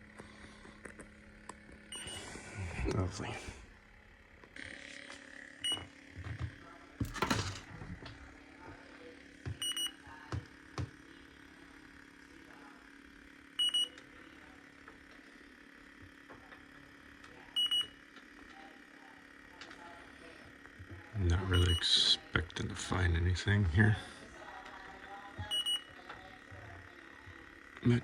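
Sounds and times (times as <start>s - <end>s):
faint steady hum: 0.0s - 28.0s
leak detector double beeps: 9.6s - 10.0s, 13.6s - 14.0s, 17.6s - 18.0s, 21.5s - 22.0s, 25.5s - 26.0s.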